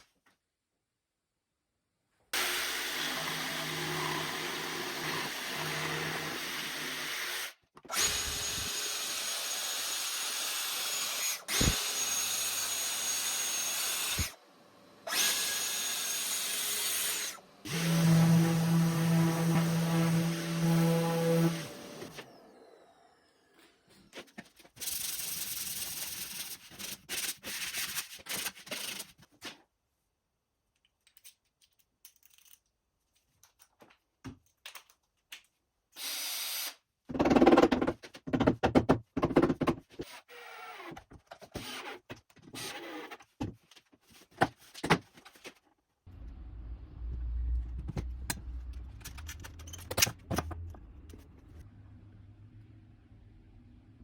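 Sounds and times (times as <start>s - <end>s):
woodworking tool noise: 2.4s - 26.9s
low steady rumble: 46.1s - 54.0s.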